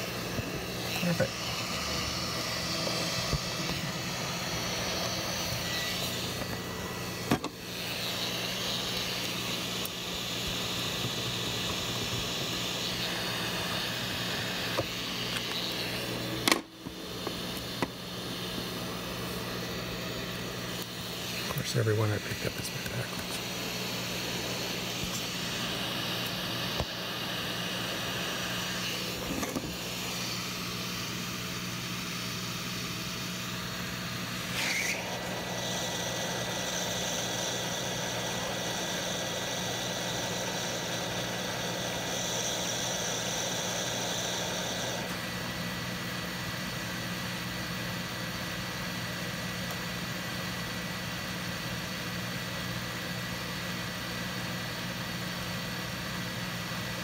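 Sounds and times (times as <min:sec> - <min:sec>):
hot air blower hissing: 0:00.0 - 0:57.0.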